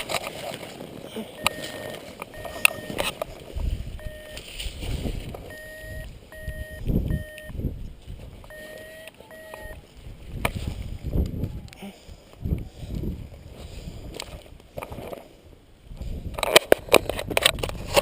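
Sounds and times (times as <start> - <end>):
short electronic beeps: 1.4 - 3.0, 4.0 - 4.5, 5.5 - 7.6, 8.5 - 9.8
wind buffeting microphone: 2.2 - 8.6, 9.6 - 18.0.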